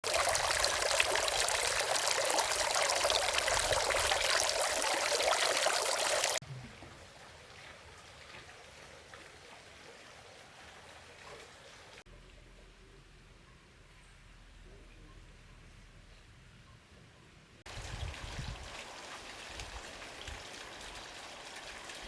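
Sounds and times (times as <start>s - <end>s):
water flowing: 0.0s - 12.0s.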